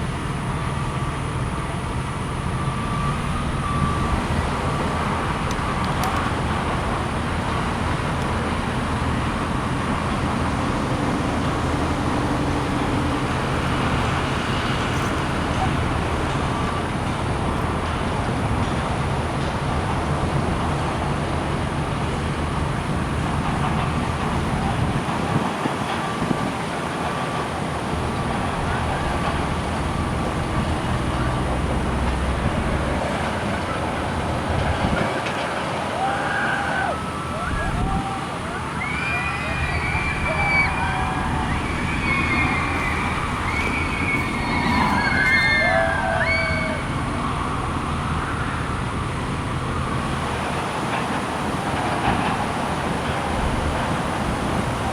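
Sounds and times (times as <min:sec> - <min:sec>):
low engine drone: 0:00.0 - 0:25.5, 0:27.1 - 0:36.0, 0:36.9 - 0:54.9
road traffic hum: 0:00.0 - 0:54.9.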